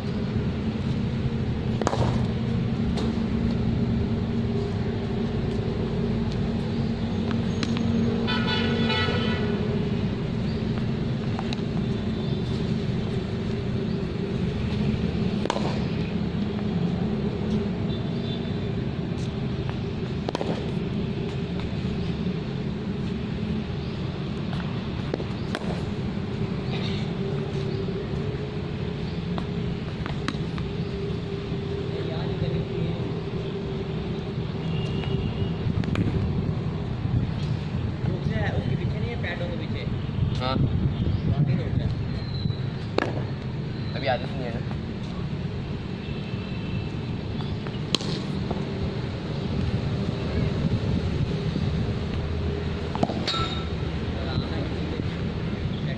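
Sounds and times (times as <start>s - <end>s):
road traffic drone: 0.0s - 55.9s
vehicle horn: 8.2s - 9.6s, 34.6s - 35.6s.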